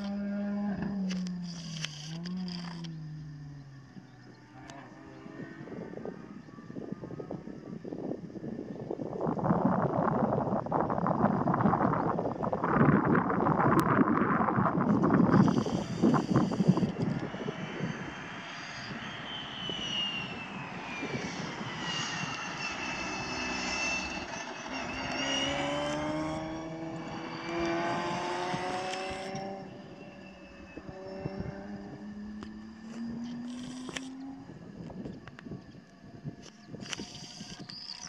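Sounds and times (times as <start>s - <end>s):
wind on microphone: 0.0s - 38.0s
car engine accelerating: 14.5s - 35.9s.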